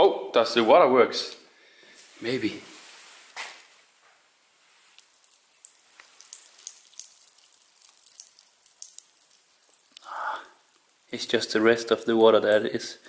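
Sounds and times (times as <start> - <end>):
tap dripping: 5.0 - 11.2.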